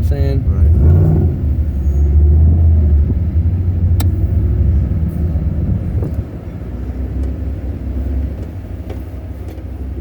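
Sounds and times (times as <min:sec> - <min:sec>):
car engine rumbling: 0:00.0 - 0:10.0
sharp click: 0:04.0 - 0:04.2.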